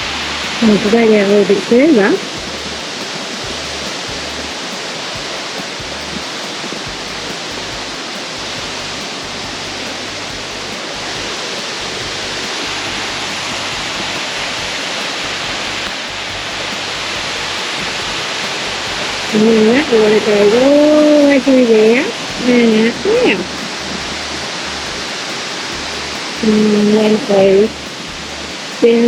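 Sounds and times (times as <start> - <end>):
stream water flowing over rocks: 0.0 - 29.0.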